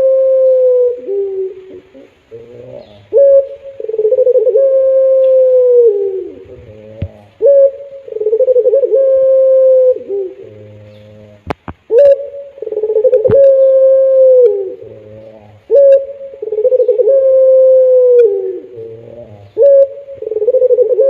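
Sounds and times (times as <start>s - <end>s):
dove cooing: 0.0s - 21.0s.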